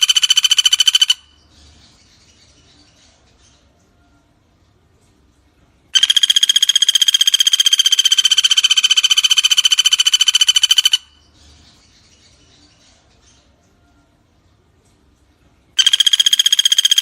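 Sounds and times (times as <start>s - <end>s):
woodpecker rattling trill: 0.0s - 1.4s, 6.0s - 11.2s, 15.8s - 17.0s.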